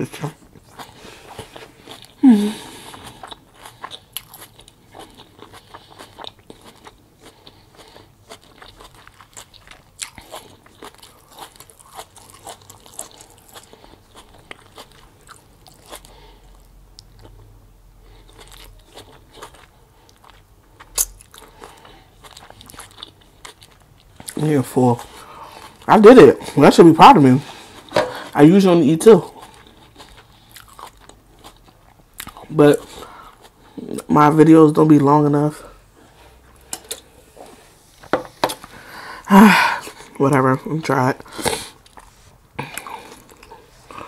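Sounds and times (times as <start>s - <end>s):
chewing and crunching lettuce: 0.1s - 35.6s, 39.8s - 44.0s
person humming: 2.2s - 2.8s.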